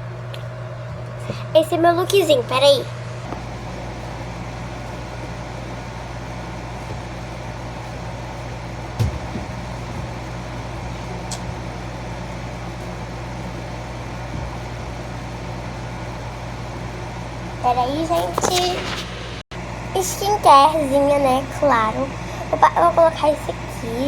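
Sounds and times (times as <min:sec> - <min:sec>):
low background hum: 0:00.0 - 0:24.0
soft thump: 0:09.0 - 0:10.4.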